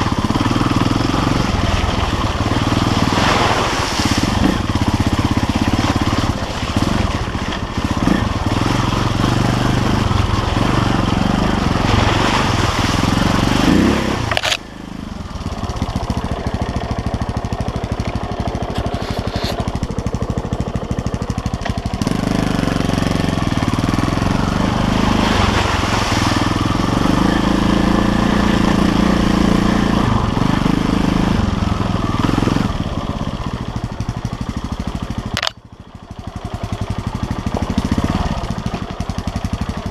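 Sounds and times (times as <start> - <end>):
motorcycle engine revving: 0.0 - 39.9
engine knock: 4.4 - 11.8, 15.3 - 24.5, 26.8 - 39.9.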